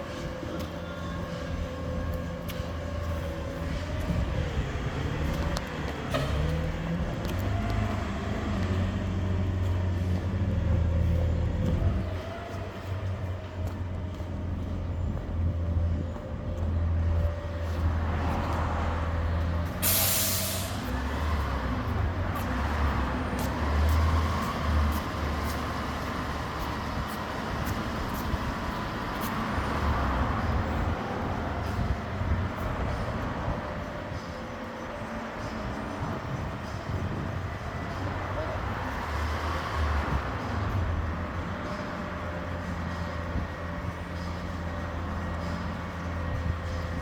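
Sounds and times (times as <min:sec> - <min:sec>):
diesel truck engine running: 0:00.0 - 0:47.0
air brake hiss: 0:19.8 - 0:20.9.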